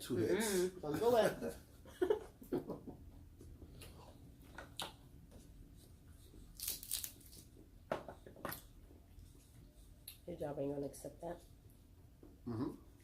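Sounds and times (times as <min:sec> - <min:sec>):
crab shells cracking: 0:06.6 - 0:07.4.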